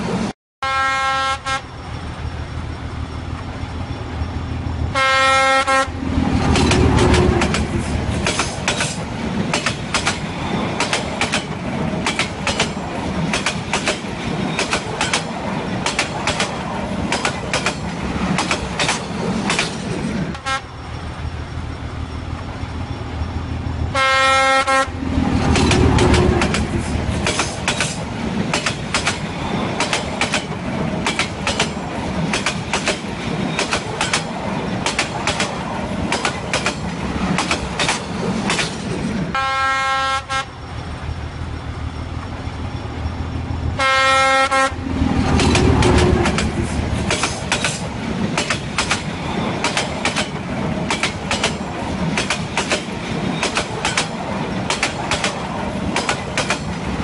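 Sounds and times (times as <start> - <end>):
train wheels clanking: 6.2 - 20.3, 25.1 - 39.2, 44.8 - 57.0.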